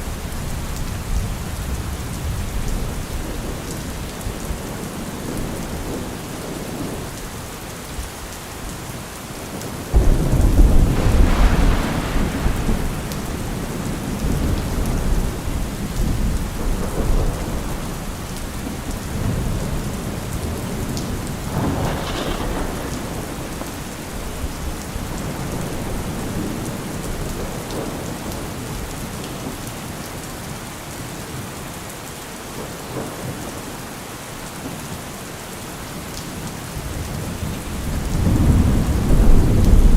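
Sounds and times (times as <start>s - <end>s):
steady rain falling: 0.0s - 39.9s
thunder rumbling: 9.9s - 28.9s, 36.8s - 39.9s.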